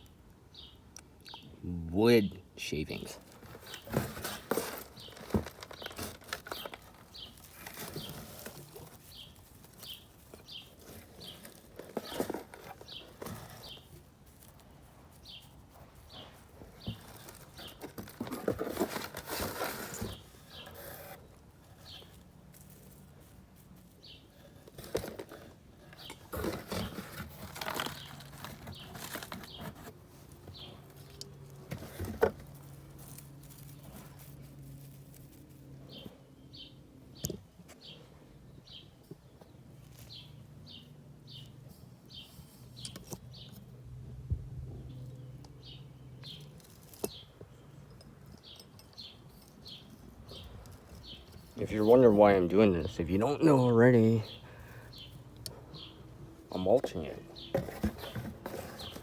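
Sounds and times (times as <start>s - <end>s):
bird chirping: 0.0s - 1.6s, 2.7s - 14.0s, 21.7s - 22.2s, 24.0s - 24.6s, 25.8s - 31.5s, 35.8s - 43.6s, 44.8s - 59.0s
dry wood shavings rustling: 2.6s - 43.7s, 45.7s - 59.0s.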